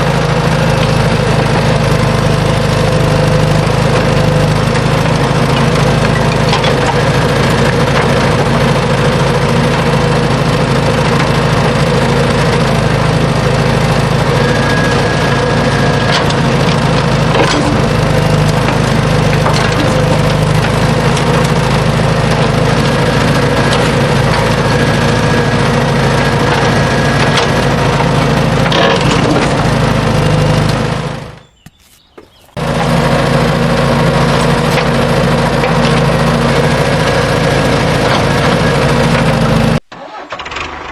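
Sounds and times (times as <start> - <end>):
small motor running: 1.0 - 31.4.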